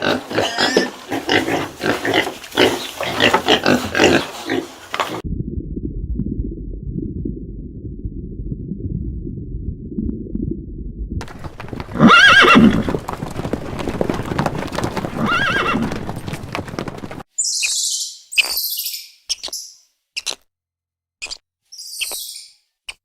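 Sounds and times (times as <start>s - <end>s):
horse whinnying: 11.2s - 16.4s
hoof clops: 11.2s - 17.2s.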